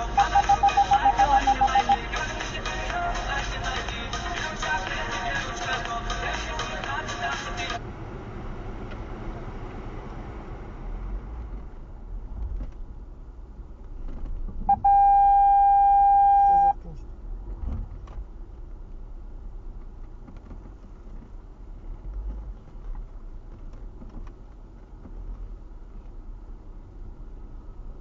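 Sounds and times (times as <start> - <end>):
high-pitched electronic beep: 0.0 - 2.1, 14.7 - 16.8
low engine rumble in car cabin: 0.0 - 28.0.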